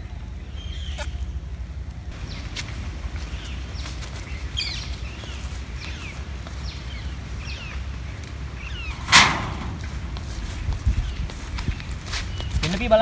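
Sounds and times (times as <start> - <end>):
birds chirping: 0.0 - 13.0
low steady rumble: 5.0 - 12.0.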